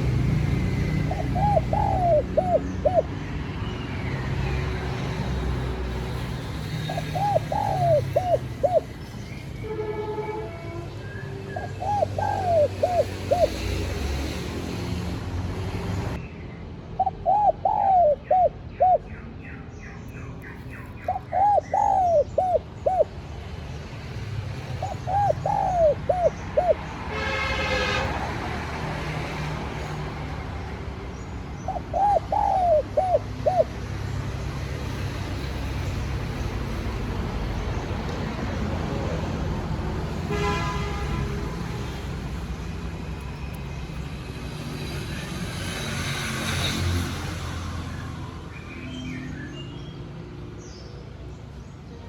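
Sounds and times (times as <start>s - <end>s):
dove cooing: 0.0s - 3.2s, 6.8s - 9.0s, 11.6s - 14.0s, 17.0s - 19.1s, 20.9s - 23.2s, 24.6s - 26.9s, 31.6s - 33.8s.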